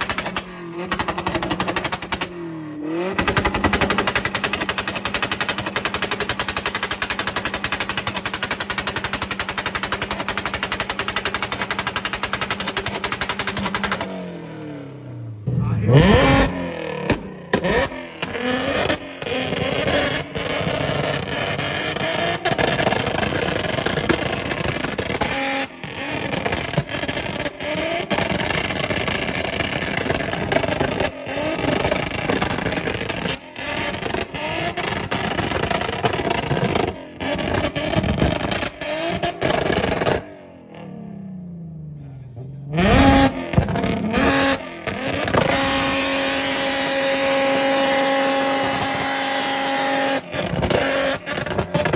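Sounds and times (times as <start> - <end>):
car engines revving: 0.0 - 51.9.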